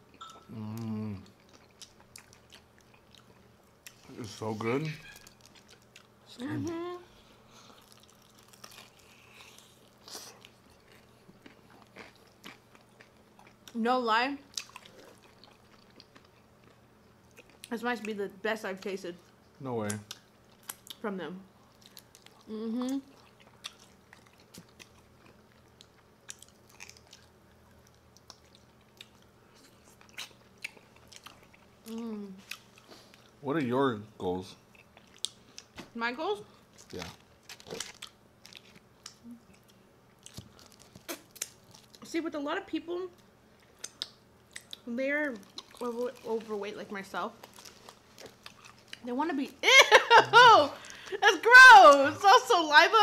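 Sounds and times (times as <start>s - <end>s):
chewing chicken wings: 14.5s - 17.7s, 21.6s - 33.4s, 36.5s - 42.0s, 43.6s - 46.5s, 47.4s - 49.1s.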